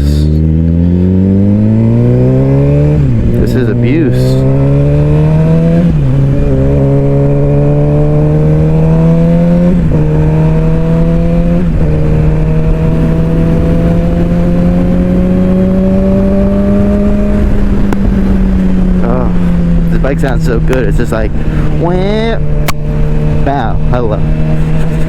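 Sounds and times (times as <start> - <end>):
low wind rumble: 0.0 - 25.0
motorcycle engine accelerating: 0.0 - 25.0.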